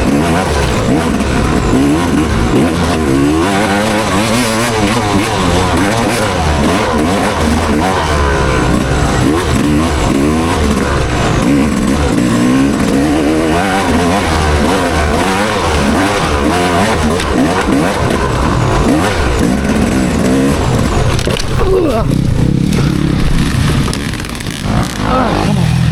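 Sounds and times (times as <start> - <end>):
motocross bike engine revving: 0.0 - 25.9.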